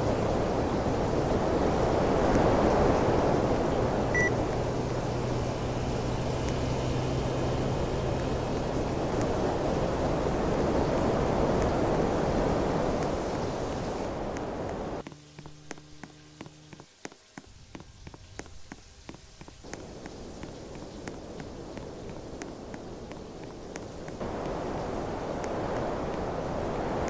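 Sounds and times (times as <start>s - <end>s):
fan blowing air: 0.0s - 16.8s, 19.0s - 27.0s
quiet hum: 0.0s - 16.8s
faint regular ticks: 14.3s - 24.7s.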